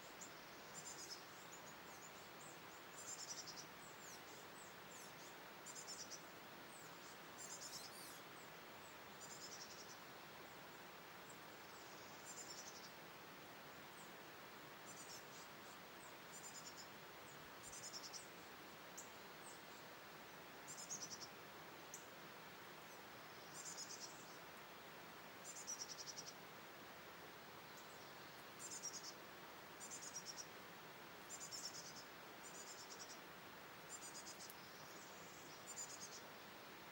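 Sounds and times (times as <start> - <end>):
faint steady hiss: 0.0 - 36.9
small bird chirping: 6.8 - 8.2, 33.9 - 36.3.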